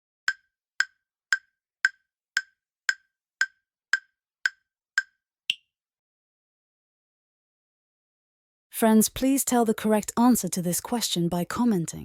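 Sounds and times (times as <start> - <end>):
countdown timer ticks: 0.3 - 5.6.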